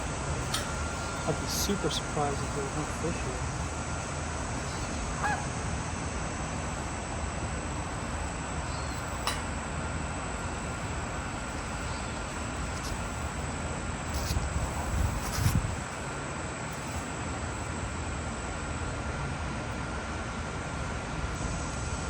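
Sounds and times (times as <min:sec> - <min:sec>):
honk-like bird call: 0:04.6 - 0:05.6.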